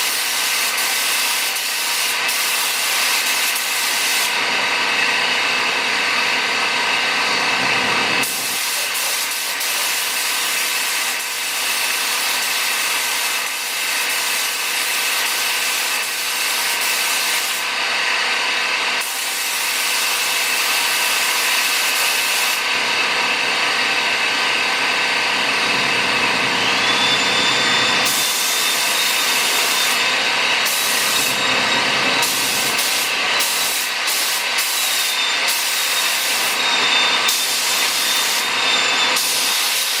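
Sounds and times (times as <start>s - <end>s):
spray gun hissing: 8.2s - 17.6s, 28.1s - 31.4s, 32.2s - 36.6s.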